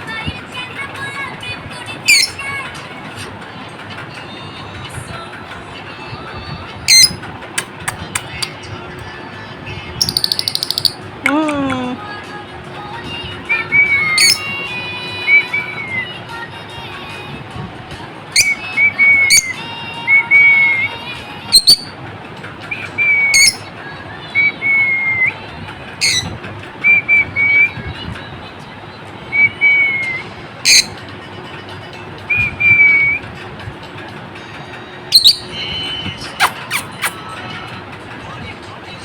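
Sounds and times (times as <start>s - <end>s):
lovebirds chirping shrilly: 2.1s - 2.4s, 10.0s - 11.0s, 14.0s - 14.5s, 21.5s - 21.9s, 23.3s - 23.7s, 26.0s - 26.3s, 30.6s - 31.0s, 35.1s - 35.6s, 36.3s - 37.2s
sharp high squeaks: 26.0s - 26.4s, 36.2s - 37.2s.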